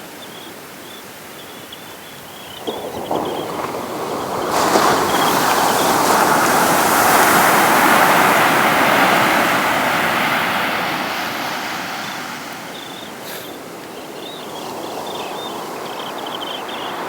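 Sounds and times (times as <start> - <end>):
sea wave breaking on beach: 2.4 - 13.8.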